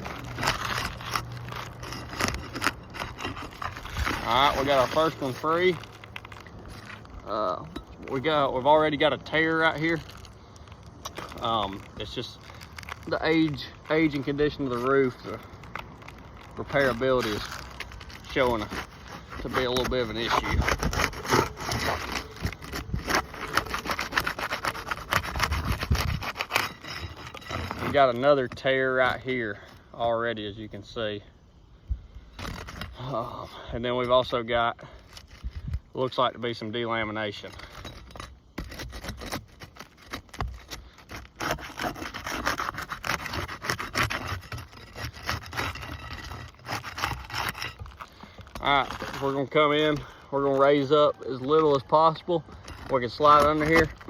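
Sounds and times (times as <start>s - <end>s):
bar scraping roof shingles: 0.0s - 7.0s, 16.1s - 29.7s, 37.2s - 54.0s.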